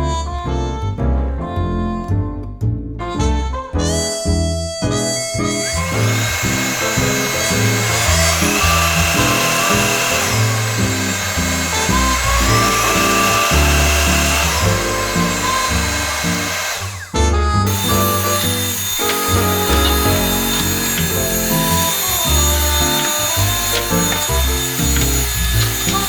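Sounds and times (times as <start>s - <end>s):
background music with bass line: 0.0s - 6.5s
vacuum cleaner running: 5.4s - 26.0s.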